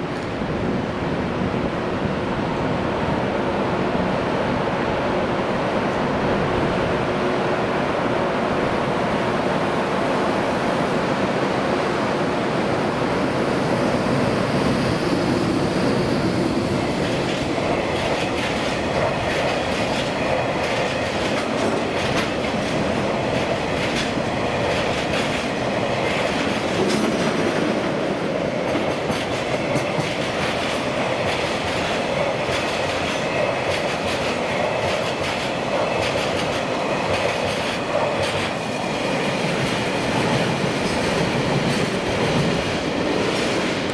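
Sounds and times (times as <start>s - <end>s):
train rumble: 0.0s - 43.9s
train wheels clacking over rail joints: 16.8s - 43.9s.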